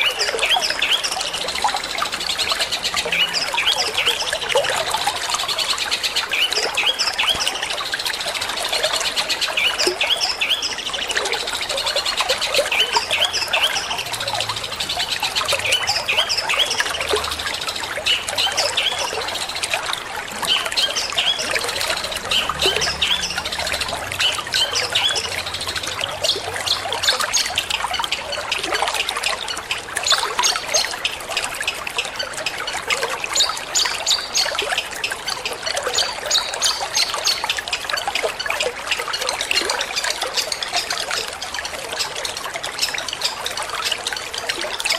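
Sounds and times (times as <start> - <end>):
bird chirping: 0.0 - 19.8, 20.4 - 28.6
water trickling: 0.0 - 44.9.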